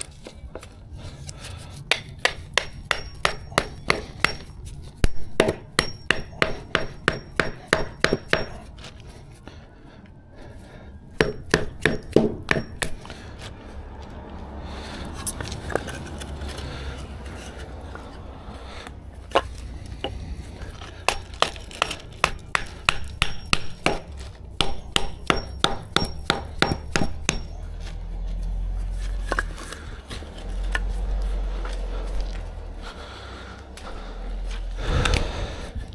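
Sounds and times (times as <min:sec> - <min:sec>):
hammer blows on timber: 0:01.9 - 0:08.7, 0:11.2 - 0:13.1, 0:19.3 - 0:27.7
low rumble: 0:13.1 - 0:22.5, 0:27.6 - 0:35.9.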